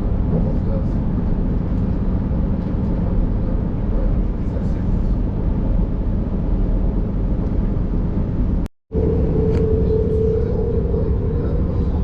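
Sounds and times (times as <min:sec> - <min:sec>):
train wheels rumbling on rails: 0:00.0 - 0:06.0
steady whine: 0:08.2 - 0:12.0.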